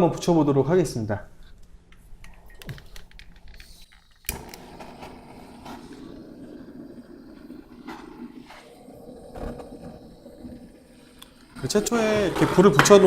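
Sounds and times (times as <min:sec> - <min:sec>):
gas torch igniting click: 0:02.6 - 0:08.7, 0:09.3 - 0:11.7
torch flame hissing: 0:03.6 - 0:13.0.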